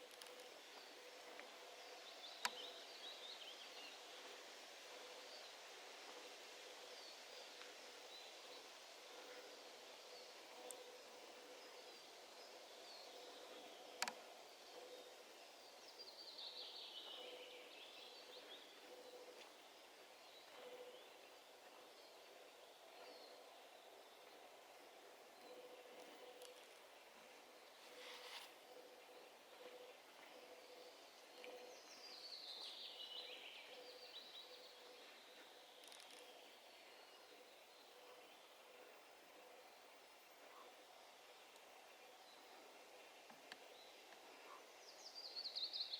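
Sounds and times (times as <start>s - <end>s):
faint songbird song: 0.0s - 45.9s
small birds chirping and singing: 6.9s - 45.9s.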